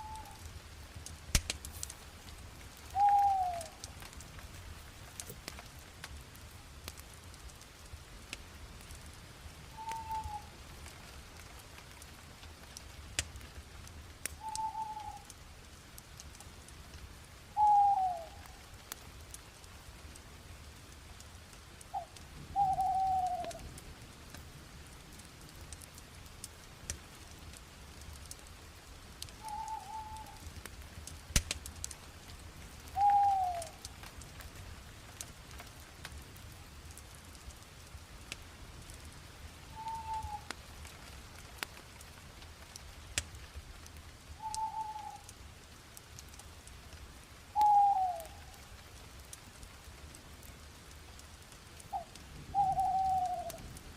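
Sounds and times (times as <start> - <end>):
bonfire crackling and popping: 0.0 - 53.9
bird whistled calls: 3.0 - 3.7, 9.8 - 10.5, 14.4 - 15.2, 17.6 - 18.3, 29.4 - 30.4, 33.0 - 33.7, 39.8 - 40.5, 44.4 - 45.2, 47.6 - 48.3.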